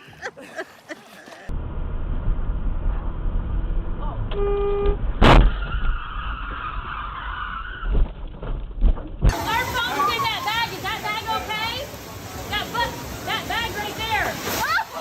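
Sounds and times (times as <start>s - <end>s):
moving vehicle rumble: 1.4s - 9.3s
car horn: 4.3s - 5.0s
loud collision bang: 5.2s - 6.0s.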